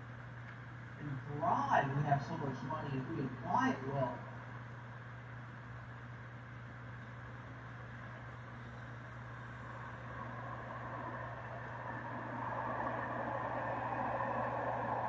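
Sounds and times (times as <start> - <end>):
distant road traffic hum: 0.0 - 15.0
vehicle approaching: 9.3 - 15.0.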